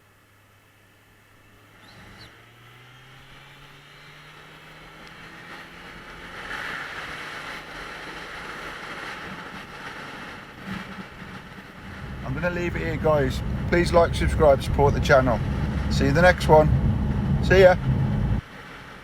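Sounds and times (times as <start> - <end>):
motorcycle engine accelerating: 1.6 - 18.4
wind rush: 10.9 - 18.4.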